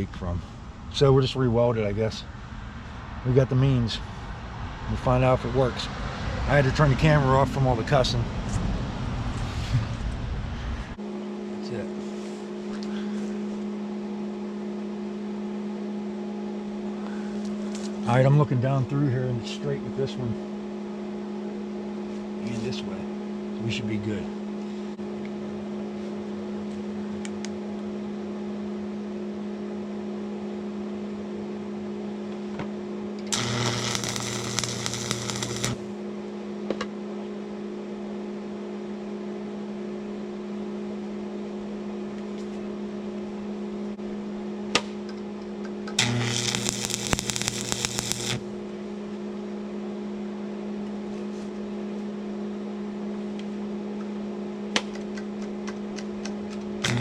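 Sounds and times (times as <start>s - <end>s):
electrical hum: 0.0s - 57.0s
arc welding crackling and buzzing: 33.2s - 35.9s, 45.9s - 48.6s, 56.4s - 57.0s.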